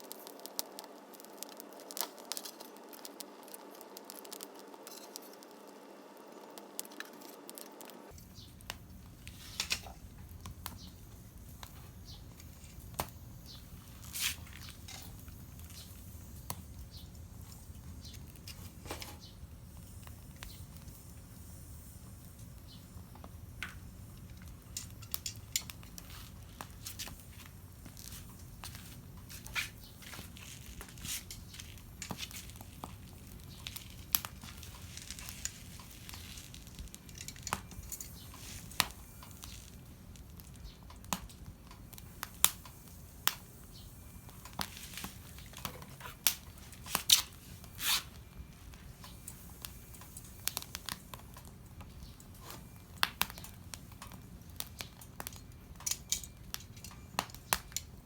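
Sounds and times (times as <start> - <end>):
paper crinkling: 0.0 - 8.1, 26.0 - 39.8.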